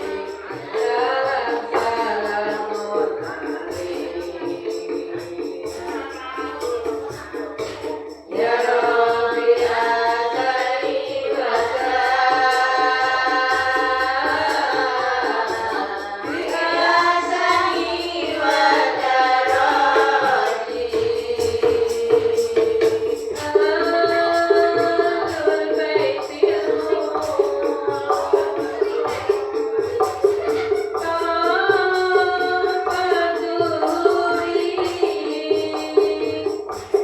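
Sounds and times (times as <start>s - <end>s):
frame drum and tambourine percussion: 0.0s - 37.0s
group of voices singing: 0.0s - 37.0s.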